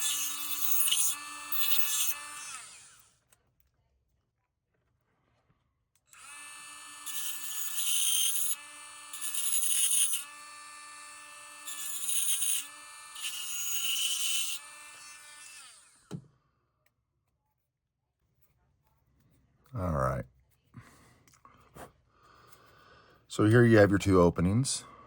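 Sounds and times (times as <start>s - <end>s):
electric rotary tool whining: 0.0s - 3.1s, 6.1s - 16.2s.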